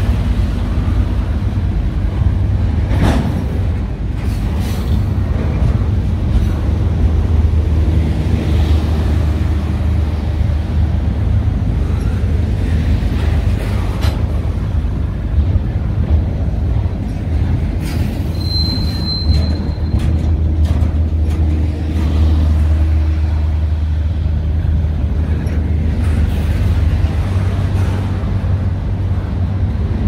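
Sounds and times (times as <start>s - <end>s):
train rumbling past: 0.0s - 30.0s
high wheel squeal: 18.0s - 20.2s.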